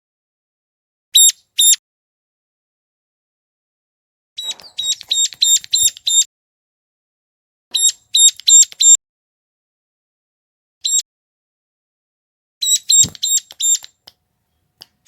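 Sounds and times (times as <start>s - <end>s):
bird call high repeated notes: 1.2s - 1.8s, 4.4s - 6.3s, 7.7s - 9.0s, 10.8s - 11.0s, 12.6s - 14.0s.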